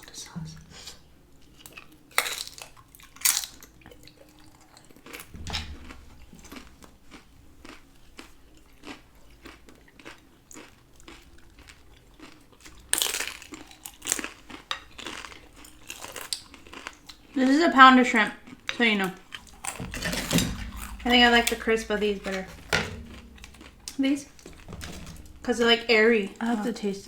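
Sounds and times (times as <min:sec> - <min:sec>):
person crunching tortilla chips: 0:01.7 - 0:05.3, 0:07.6 - 0:17.4.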